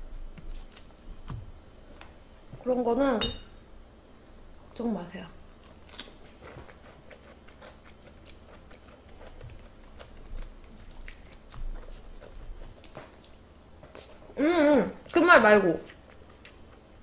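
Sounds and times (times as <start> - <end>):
person chewing food: 5.6 - 14.4, 15.9 - 17.0.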